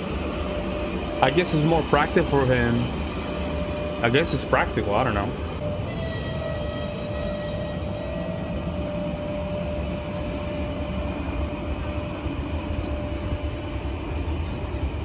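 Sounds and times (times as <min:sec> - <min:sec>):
thin whine: 0:00.0 - 0:15.0
train rumble and hiss: 0:00.0 - 0:15.0.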